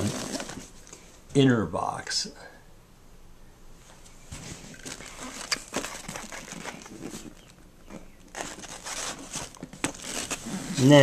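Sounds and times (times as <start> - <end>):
cardboard and paper rustling: 0.0 - 0.8, 4.3 - 11.0.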